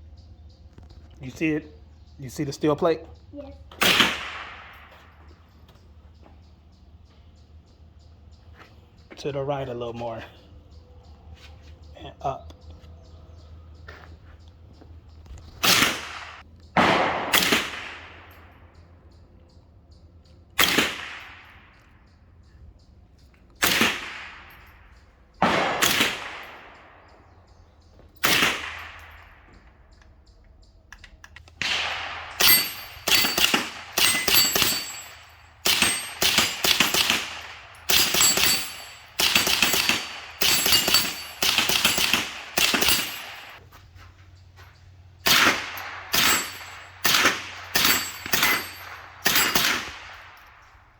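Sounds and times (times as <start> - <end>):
suppressed rifle shots: 3.7 - 5.3, 15.6 - 18.6, 20.6 - 21.9, 23.6 - 24.7, 25.4 - 27.0, 28.2 - 29.5, 31.4 - 43.6, 45.2 - 50.7
bullets ringing on steel plate: 31.6 - 43.6, 45.3 - 50.9.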